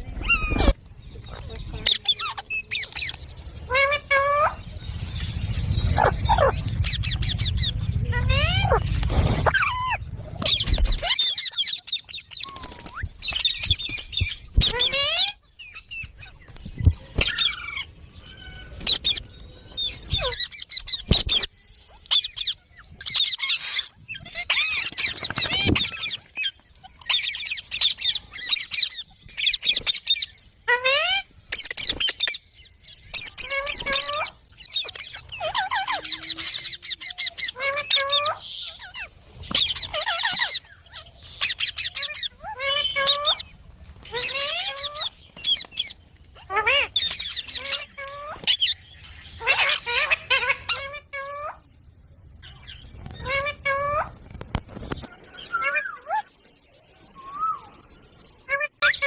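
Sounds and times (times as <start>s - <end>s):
parrot sweeping calls: 3.7s - 11.8s
parrot chattering and squawking: 5.3s - 11.9s, 33.1s - 43.5s, 44.1s - 48.8s, 49.4s - 51.7s, 53.1s - 54.2s, 58.5s - 59.0s.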